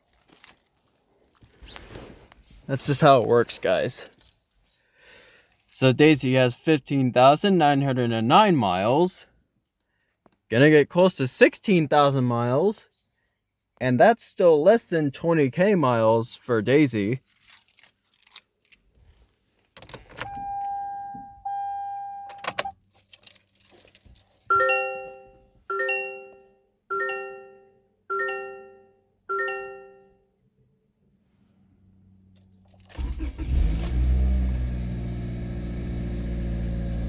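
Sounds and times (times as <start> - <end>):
dashboard chimes: 24.5 - 30.2
car engine starting and idling: 31.8 - 37.0.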